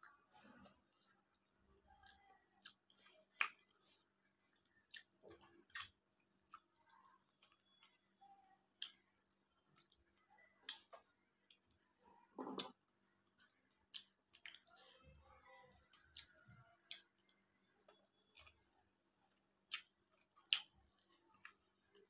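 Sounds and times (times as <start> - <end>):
quiet chewing and mouth sounds: 0.0 - 22.0
sharp mouth clicks and smacks: 4.9 - 6.7, 19.7 - 20.7.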